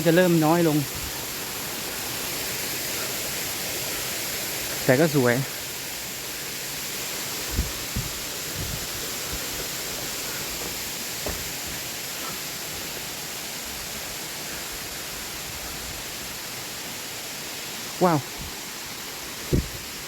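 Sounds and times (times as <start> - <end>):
waterfall rushing: 0.0 - 20.0
faint knocks: 10.6 - 11.8.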